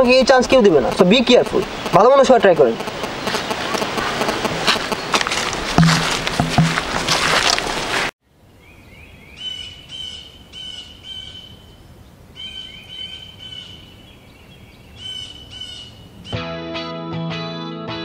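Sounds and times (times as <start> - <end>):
songbird calling: 0.0 - 5.2, 8.6 - 16.4
faint outdoor hiss: 0.0 - 16.4.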